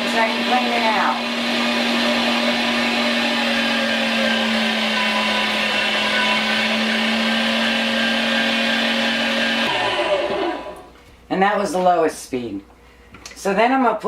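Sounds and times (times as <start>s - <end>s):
meat grinder motor hum: 0.0s - 10.9s.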